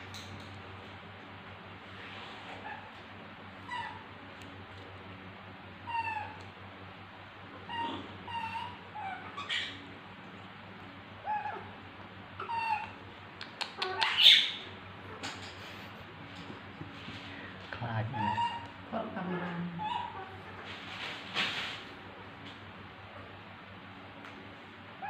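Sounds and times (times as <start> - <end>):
steady low hum: 0.0 - 25.0
baby monkey squeaking: 7.7 - 9.8, 12.4 - 13.0, 13.6 - 14.7, 18.2 - 18.8.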